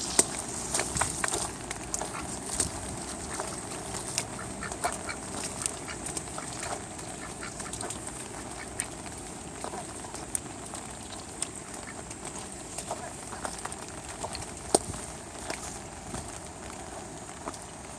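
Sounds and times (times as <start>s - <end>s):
rain hissing: 0.0s - 17.9s
ducks quacking: 2.0s - 10.3s.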